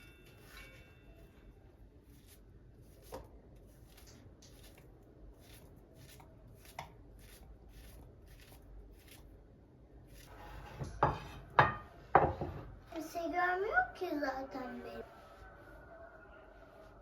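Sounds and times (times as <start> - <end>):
knife strokes on cutting board: 2.1 - 9.2.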